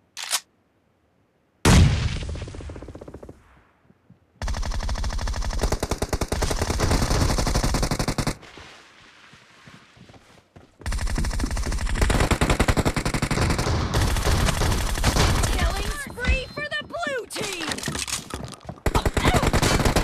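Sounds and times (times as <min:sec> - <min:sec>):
video game automatic gunfire: 0:04.4 - 0:08.4, 0:10.9 - 0:16.1, 0:18.8 - 0:20.0.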